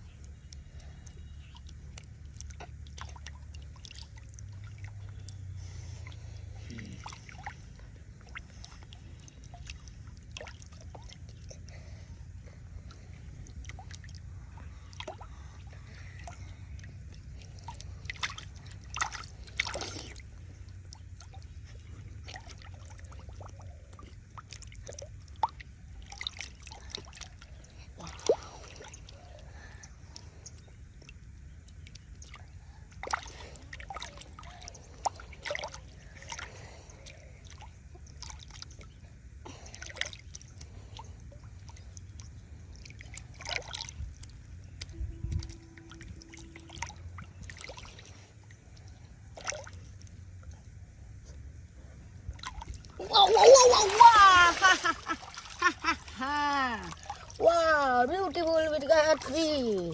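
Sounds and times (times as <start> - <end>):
low steady rumble: 0.0 - 59.9
muddy water sloshing and squishing: 0.0 - 59.9
short splashes: 17.3 - 29.4, 33.0 - 41.1, 41.7 - 48.3, 52.3 - 58.0.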